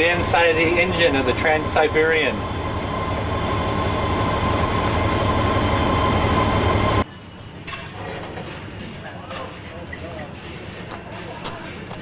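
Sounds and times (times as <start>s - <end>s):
locomotive machinery rumbling: 0.0s - 7.0s
steady high-pitched tone: 0.0s - 7.0s.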